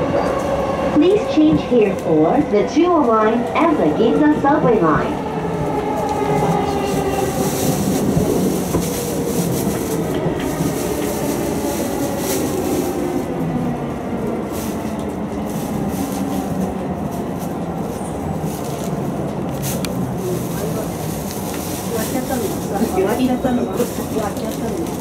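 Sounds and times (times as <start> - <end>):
rail clacks: 0.0 - 25.0
train rumbling on rails: 0.0 - 25.0.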